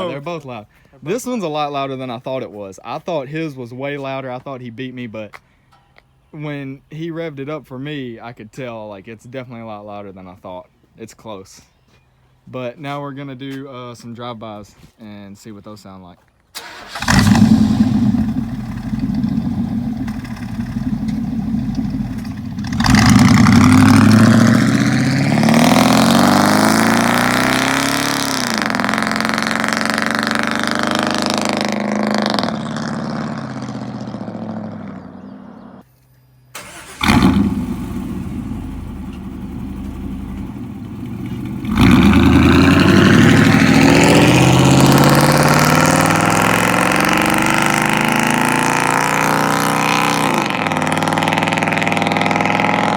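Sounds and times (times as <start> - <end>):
pickup truck accelerating past: 16.6 - 35.7, 36.6 - 52.9.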